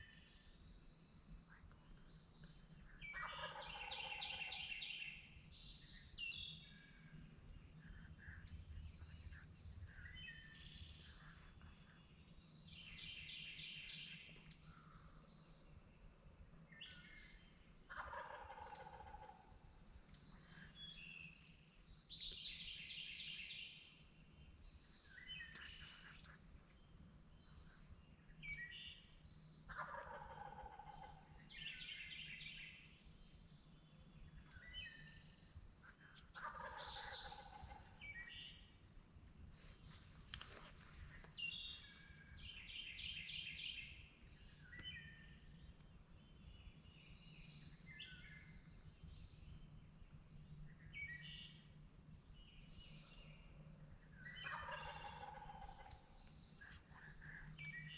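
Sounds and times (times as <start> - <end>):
small birds chirping: 0.0 - 57.9
wild turkey gobbling: 3.1 - 4.6, 17.9 - 19.5, 29.7 - 31.2, 36.3 - 38.0, 54.4 - 56.1.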